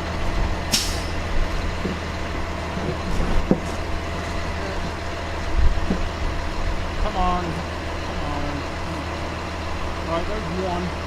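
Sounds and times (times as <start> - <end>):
truck engine idling: 0.0 - 11.0
short sharp hiss: 0.7 - 1.2.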